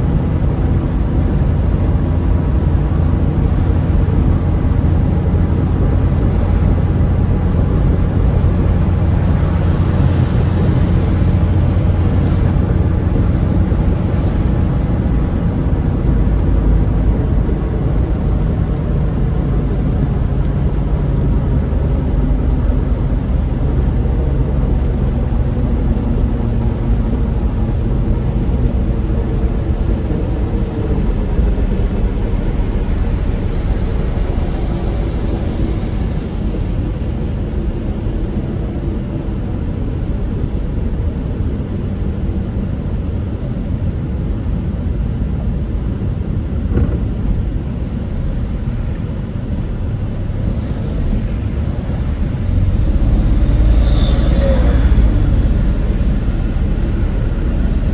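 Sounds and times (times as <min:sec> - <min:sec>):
car engine and tyre rumble: 0:00.0 - 0:57.9.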